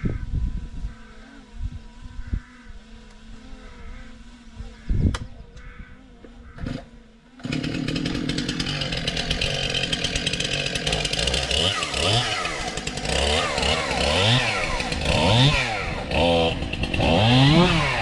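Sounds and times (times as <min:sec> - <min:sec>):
chainsaw revving: 0:06.4 - 0:18.0.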